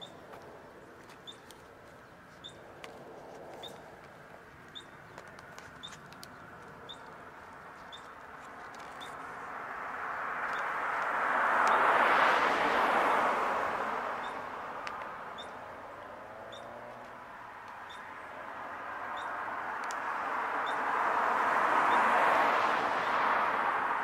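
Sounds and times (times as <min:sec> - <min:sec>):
vehicle tyre and road noise: 0:00.0 - 0:24.0
small bird chirping: 0:01.0 - 0:02.7, 0:03.6 - 0:03.9, 0:04.7 - 0:09.4, 0:14.2 - 0:14.4, 0:15.3 - 0:15.6, 0:16.4 - 0:16.9, 0:17.8 - 0:18.3, 0:19.1 - 0:19.4.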